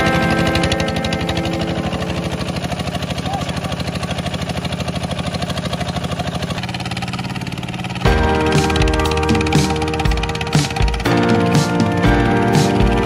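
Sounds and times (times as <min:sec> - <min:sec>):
loud music: 0:00.0 - 0:02.8, 0:08.1 - 0:13.0
tractor engine chugging: 0:00.0 - 0:13.0.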